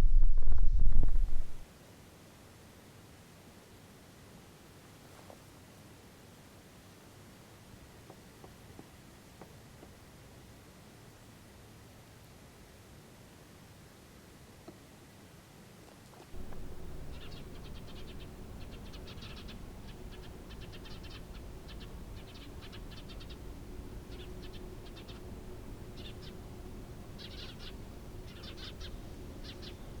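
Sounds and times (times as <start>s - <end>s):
low outdoor rumble: 0.0s - 1.6s, 16.4s - 30.0s
small birds chirping: 16.4s - 30.0s.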